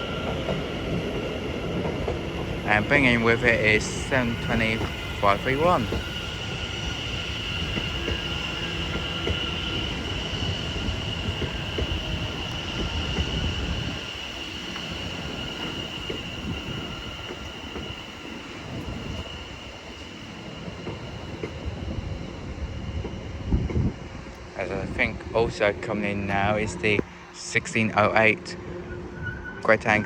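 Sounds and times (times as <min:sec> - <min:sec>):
train rumbling into platform: 0:00.0 - 0:30.0
high-pitched wheel squeal: 0:28.7 - 0:30.0.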